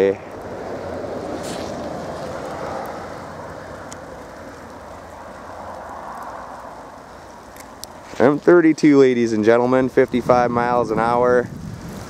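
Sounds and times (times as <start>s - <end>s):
tyre and road noise: 0.0s - 12.0s
faint ticks: 3.8s - 8.1s.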